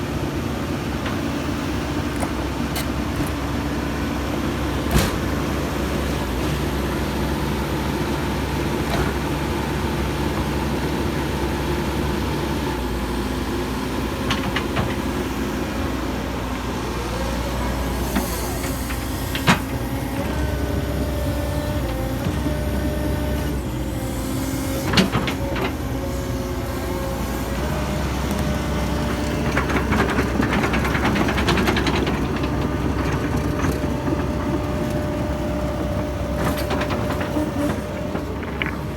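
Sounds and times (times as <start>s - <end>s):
excavator diesel engine running: 0.0s - 38.9s
hydraulic whine: 0.6s - 31.8s.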